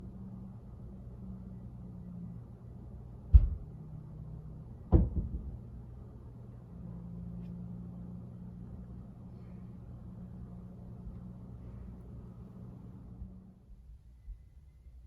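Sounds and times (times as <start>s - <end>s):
low room hum: 0.0s - 15.0s
heavy thuds from floor above: 3.3s - 3.6s.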